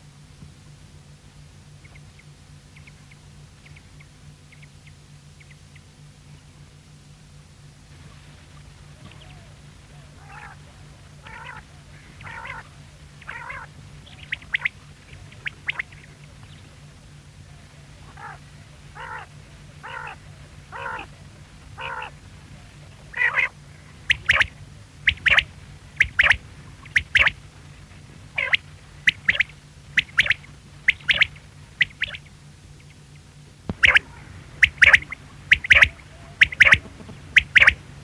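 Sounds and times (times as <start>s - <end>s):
quail calling: 9.0s - 16.7s, 17.5s - 27.4s, 28.3s - 33.0s, 33.7s - 38.0s.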